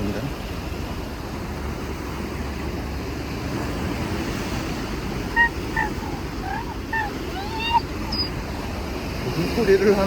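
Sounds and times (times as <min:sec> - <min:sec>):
sea surf: 0:00.0 - 0:10.0
dog whining: 0:05.3 - 0:08.6.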